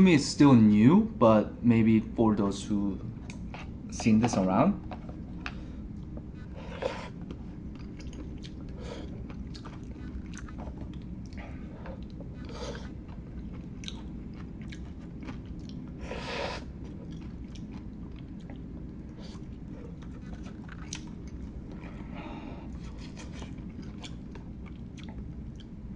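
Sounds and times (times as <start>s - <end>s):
wet chewing: 4.8s - 25.8s.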